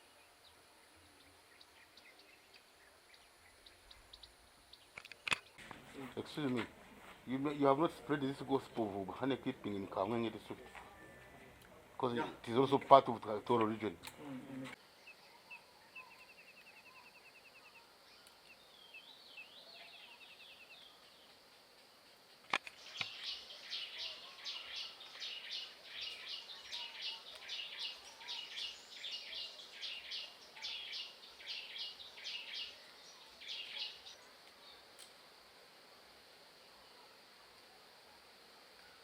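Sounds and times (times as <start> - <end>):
birds calling: 22.2 - 34.8.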